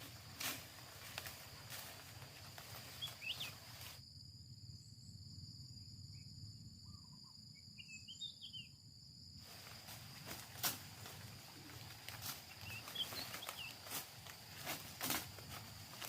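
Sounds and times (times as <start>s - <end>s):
insects droning: 0.0s - 16.0s
bird chirps: 2.9s - 3.7s, 6.1s - 8.8s, 12.5s - 13.8s.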